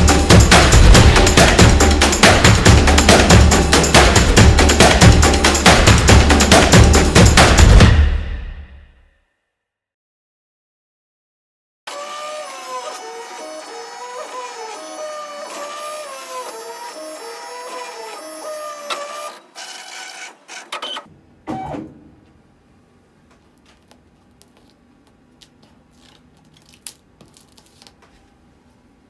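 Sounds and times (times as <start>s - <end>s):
printer stepper motors whining: 11.9s - 21.7s.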